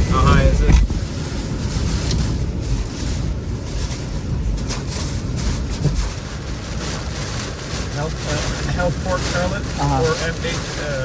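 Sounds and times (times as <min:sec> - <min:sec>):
sharp wind hits: 0:00.0 - 0:09.8
gusty wind rumble: 0:00.0 - 0:11.0.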